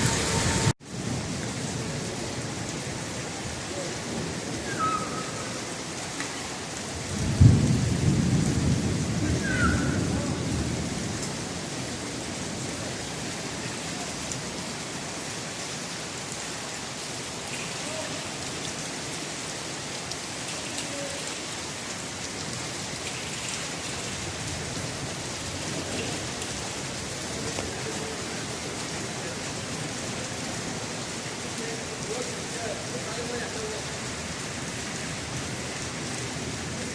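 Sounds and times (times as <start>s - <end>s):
torrential rain splashing: 0.0s - 36.9s.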